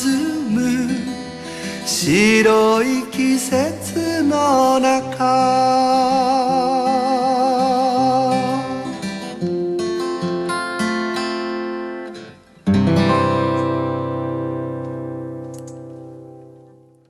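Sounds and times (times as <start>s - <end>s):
person singing with vibrato: 0.0s - 9.2s
acoustic guitar: 0.0s - 17.0s.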